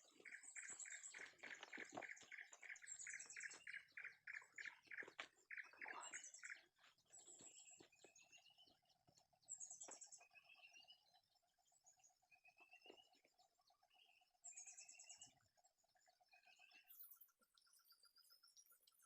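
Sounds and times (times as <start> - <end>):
birds trilling: 0.0 - 8.7.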